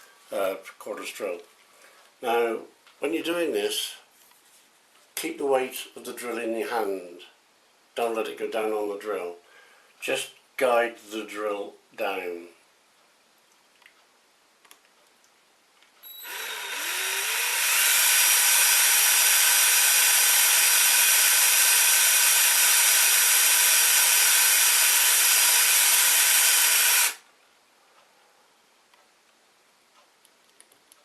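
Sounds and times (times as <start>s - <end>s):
cordless drill whining: 16.0s - 27.2s.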